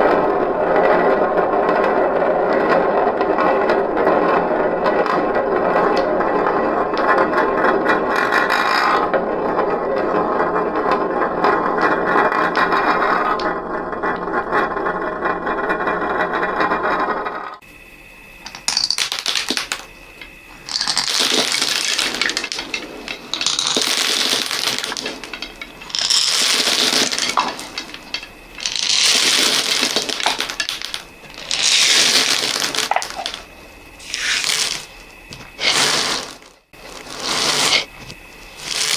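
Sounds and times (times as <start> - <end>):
beads and balls clattering: 18.4 - 38.9.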